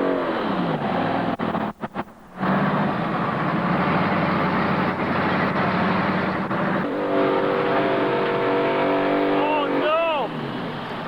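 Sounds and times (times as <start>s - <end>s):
truck engine running: 0.0s - 11.0s
steady pitched engine note: 2.4s - 10.7s.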